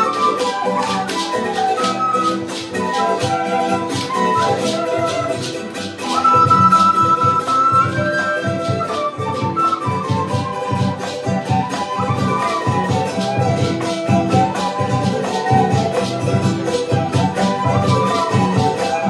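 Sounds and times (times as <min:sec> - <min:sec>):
flute melody: 0:00.0 - 0:19.0
strummed charango: 0:00.0 - 0:19.0.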